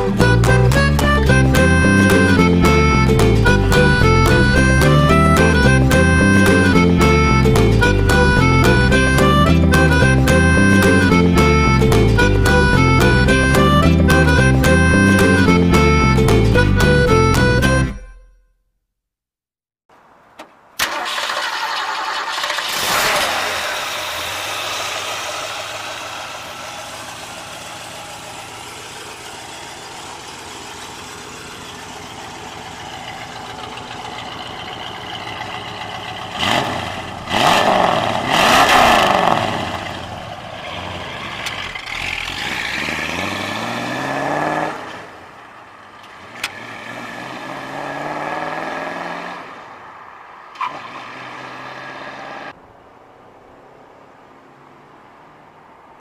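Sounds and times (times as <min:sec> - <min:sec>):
car engine revving: 0:20.8 - 0:52.6
car pulling away accelerating: 0:20.8 - 0:52.6.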